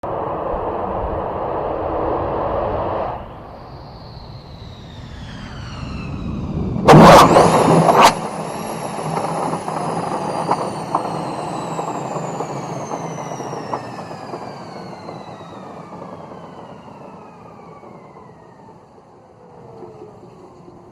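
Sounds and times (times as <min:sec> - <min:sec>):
jet engine whine: 0:00.0 - 0:20.9
loud jet roar: 0:00.0 - 0:20.9.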